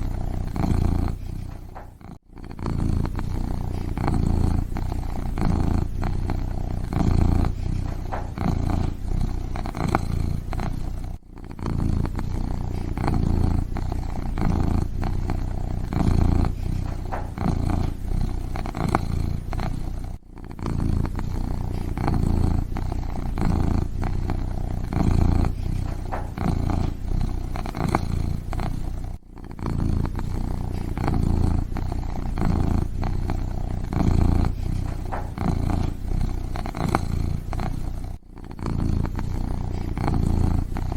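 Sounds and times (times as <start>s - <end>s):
kitten purring: 0.0s - 40.9s.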